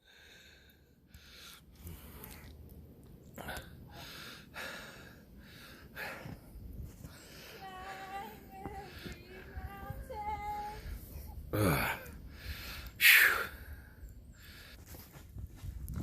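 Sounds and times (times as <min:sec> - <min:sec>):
person wavering vocal sounds: 0:11.5 - 0:12.2.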